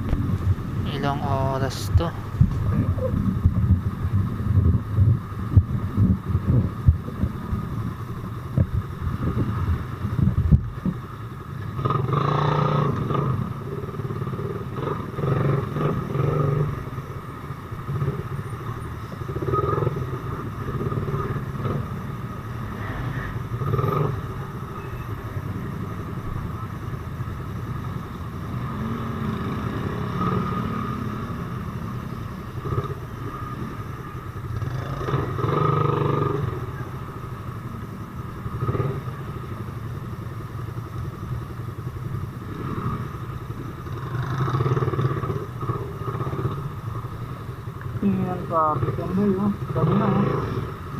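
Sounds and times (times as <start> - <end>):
wind buffeting microphone: 0.0 - 11.1
motorcycle engine revving: 0.0 - 50.9.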